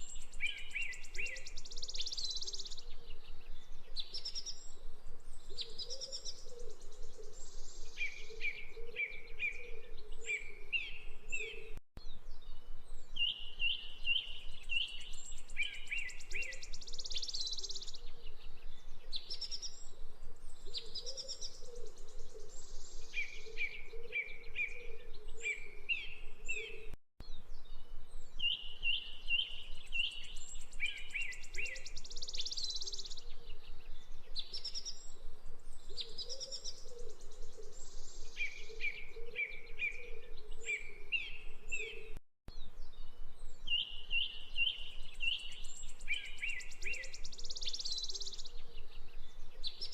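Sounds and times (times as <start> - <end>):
birds chirping and trilling: 0.0 - 49.9.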